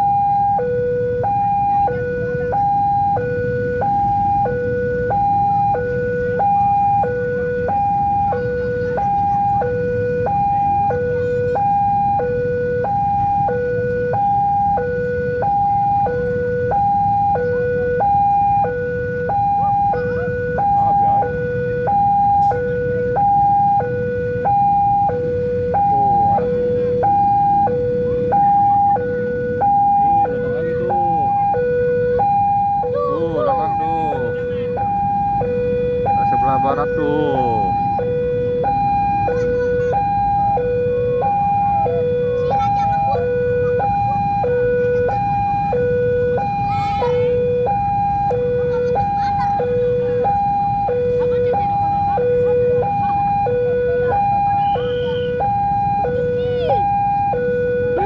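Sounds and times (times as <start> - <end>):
two-tone crossing alarm: 0.0 - 58.0.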